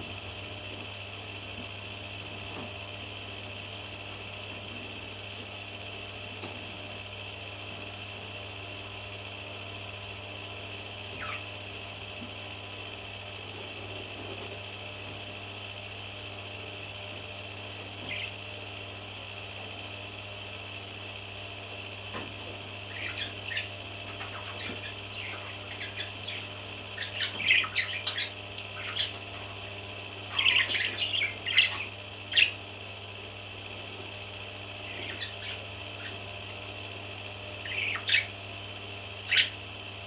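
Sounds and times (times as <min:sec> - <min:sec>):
baby parrots chirping and squawking: 0:11.2 - 0:11.5, 0:18.1 - 0:18.4, 0:22.9 - 0:29.7, 0:30.3 - 0:32.6, 0:34.8 - 0:36.2, 0:37.6 - 0:38.4, 0:39.3 - 0:39.6.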